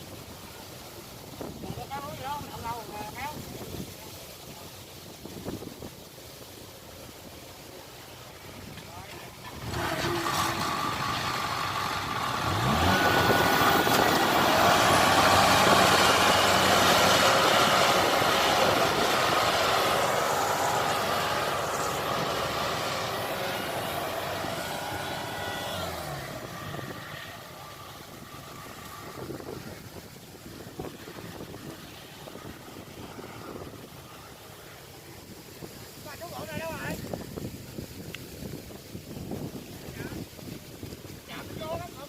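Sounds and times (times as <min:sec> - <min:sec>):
heavy vehicle engine passing: 0:08.8 - 0:35.4.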